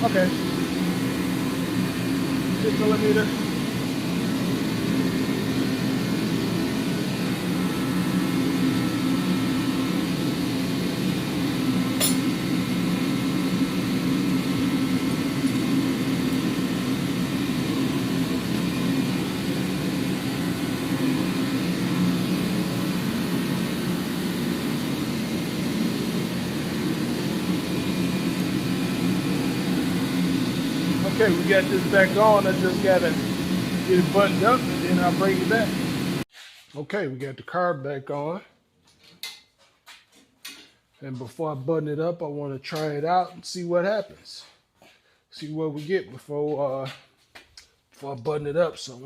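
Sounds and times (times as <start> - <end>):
fan unit humming: 0.0 - 36.3.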